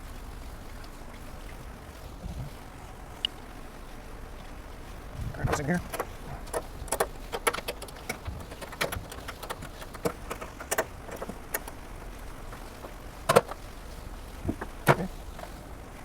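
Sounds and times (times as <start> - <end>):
hands winding exhaust wrap: 5.3 - 15.6.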